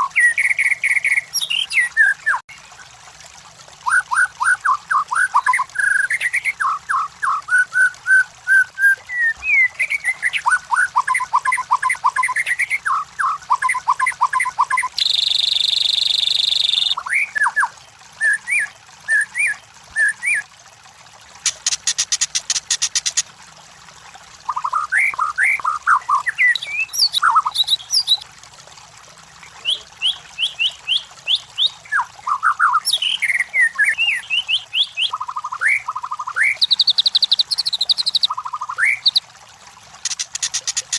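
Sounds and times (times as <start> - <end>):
bird singing whistled notes: 11.0 - 17.6, 24.6 - 28.2, 29.6 - 39.2
high ticking bird rattle: 21.4 - 23.3, 40.0 - 40.9.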